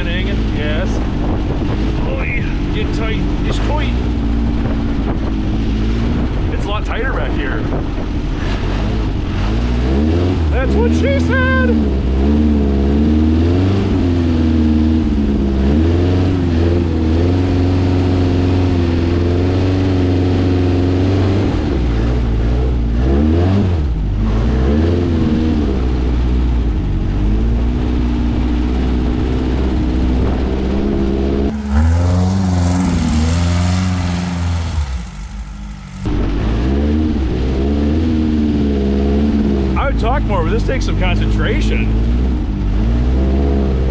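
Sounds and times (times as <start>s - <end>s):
engine revving: 8.4s - 26.3s, 30.3s - 39.9s
loud hiss: 31.5s - 36.1s.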